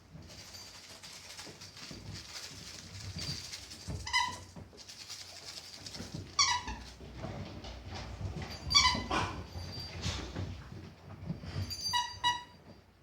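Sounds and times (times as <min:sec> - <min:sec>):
squeaky dog toy: 0:11.7 - 0:12.6.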